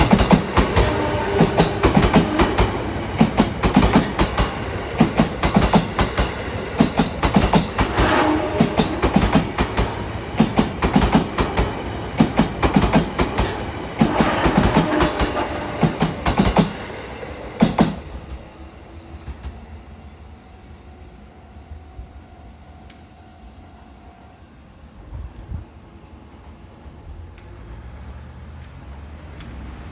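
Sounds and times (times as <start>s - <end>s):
train wheels clattering over joints: 0.0s - 18.5s.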